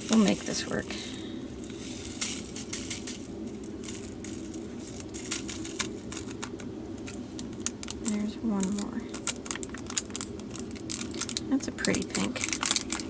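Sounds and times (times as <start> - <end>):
steady low hum: 0.0 - 13.0
beads rattling into plastic container: 1.7 - 6.6.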